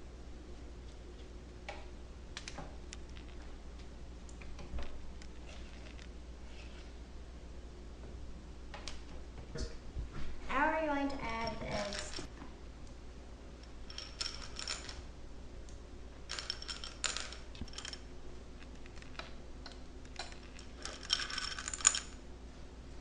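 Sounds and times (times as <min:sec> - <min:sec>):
kitchen items clicking and clinking: 0:11.1 - 0:12.3, 0:13.9 - 0:15.0, 0:16.3 - 0:18.1, 0:20.1 - 0:22.2.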